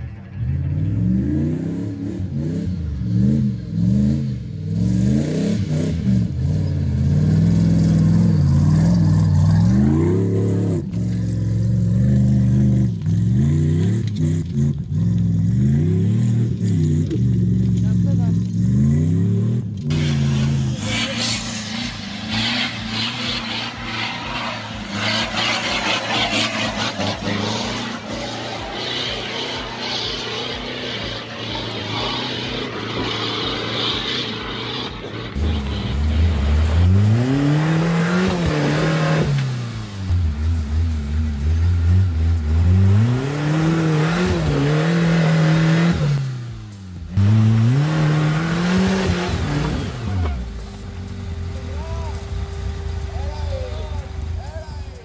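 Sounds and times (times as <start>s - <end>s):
off-road vehicle engine pulling uphill: 0.0s - 55.0s
engine revving hard: 0.7s - 50.5s.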